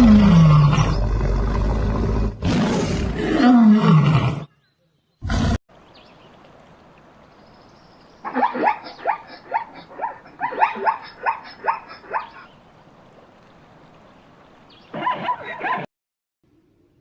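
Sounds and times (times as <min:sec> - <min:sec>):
mammal calling: 0:07.6 - 0:12.6.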